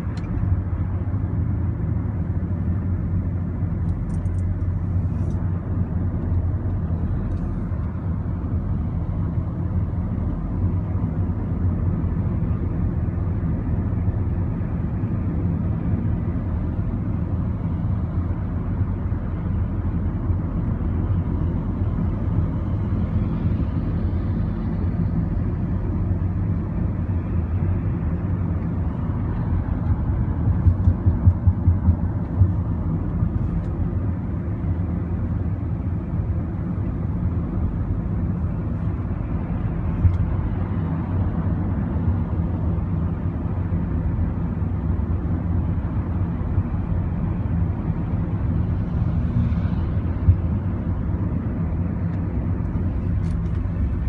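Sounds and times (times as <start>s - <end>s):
road vehicle rumbling: 0.0s - 54.0s
low bumps: 29.8s - 33.7s.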